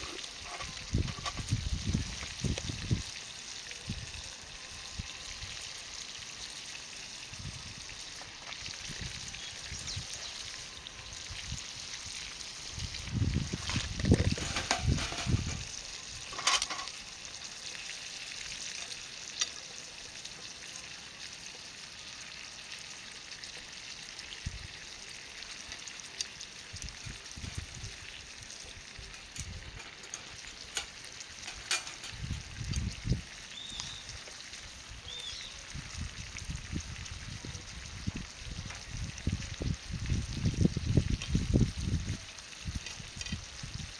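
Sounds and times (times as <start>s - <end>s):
garlic sizzling in oil: 0.0s - 43.9s
pan and utensils clinking: 14.2s - 17.0s, 29.1s - 32.4s.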